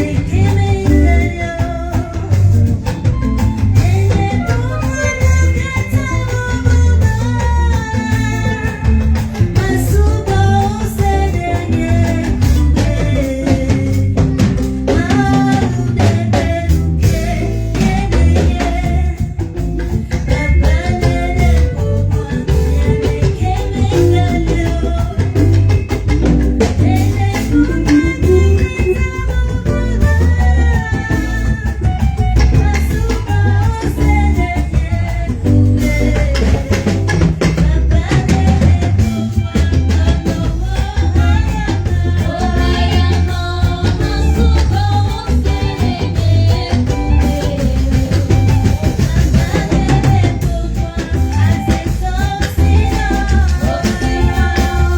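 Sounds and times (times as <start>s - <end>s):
people singing: 0.0s - 2.9s, 3.8s - 31.8s, 32.6s - 54.9s
live band playing: 0.0s - 54.9s.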